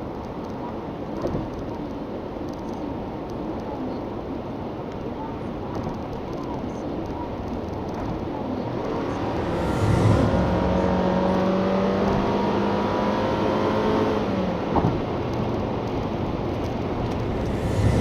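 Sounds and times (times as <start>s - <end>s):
road noise: 4.2s - 18.0s
car engine accelerating: 8.5s - 18.0s.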